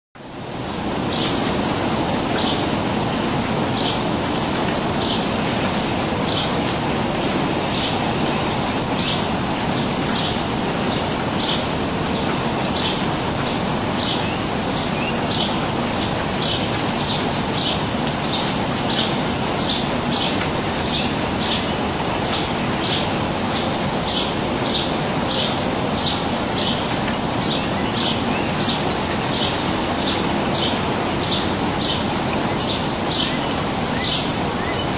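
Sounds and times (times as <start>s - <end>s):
bird high chirp: 32.6s - 34.9s.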